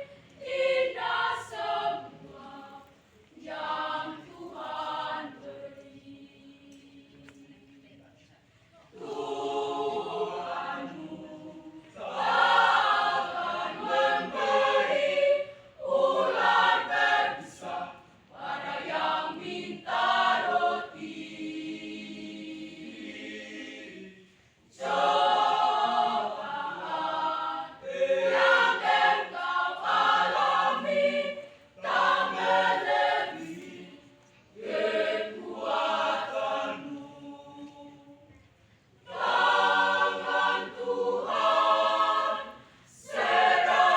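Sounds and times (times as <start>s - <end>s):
school choir singing: 0.0s - 7.4s, 8.9s - 38.4s, 39.0s - 43.9s.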